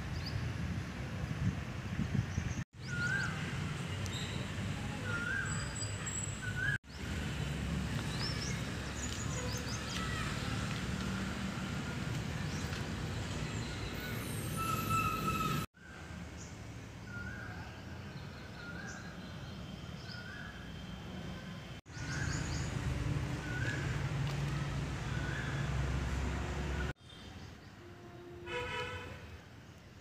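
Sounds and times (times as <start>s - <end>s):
high bird chirps: 13.6s - 15.7s
bird whistling notes: 14.0s - 15.6s.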